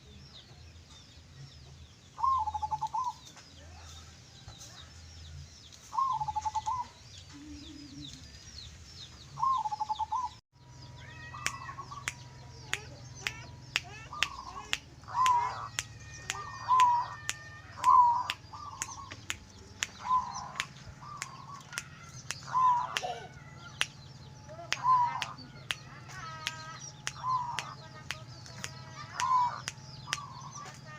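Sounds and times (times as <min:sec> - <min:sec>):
dove cooing: 0:05.9 - 0:08.4, 0:16.4 - 0:19.3, 0:19.9 - 0:23.7.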